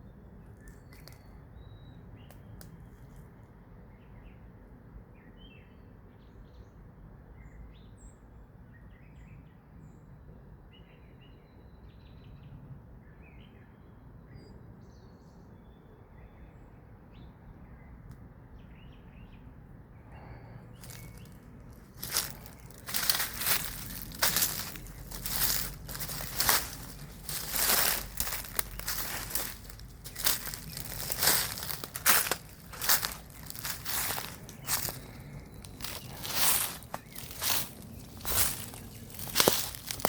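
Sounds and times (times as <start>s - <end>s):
small birds chirping: 0.4s - 3.2s, 20.1s - 40.0s
crunching of dry vegetation: 0.5s - 1.4s, 20.2s - 40.0s
low outdoor rumble: 20.2s - 40.0s.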